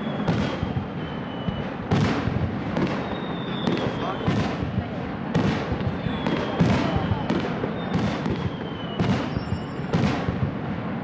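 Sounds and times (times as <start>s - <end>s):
falling whistle: 0.0s - 1.7s, 2.8s - 4.4s, 6.0s - 9.9s
firework booms: 0.0s - 11.0s
firework crackling: 0.0s - 11.0s.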